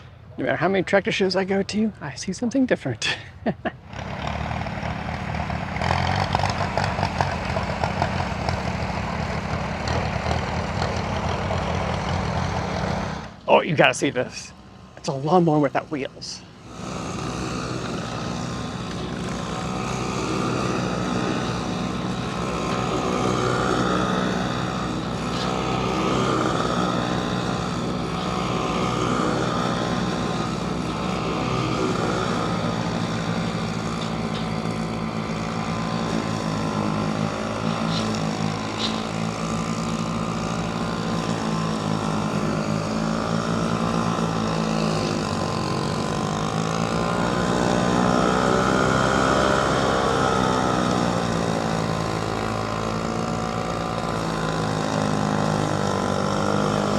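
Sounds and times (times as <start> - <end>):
lawnmower engine running: 0.0 - 56.9.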